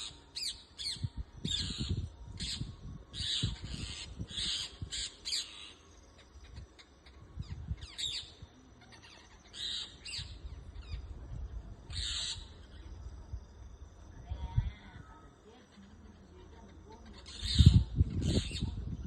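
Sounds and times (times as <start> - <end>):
parrots screeching: 11.9 - 12.5, 17.2 - 18.6.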